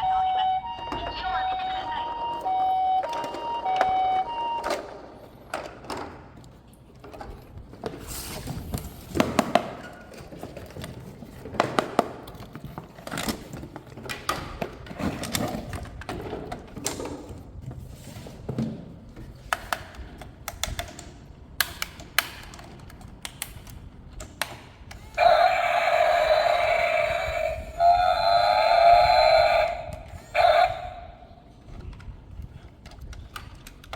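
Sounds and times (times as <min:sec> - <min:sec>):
loud electronic tone: 0:00.0 - 0:04.7
plastic toy parts clicking: 0:19.4 - 0:25.6, 0:31.6 - 0:33.9.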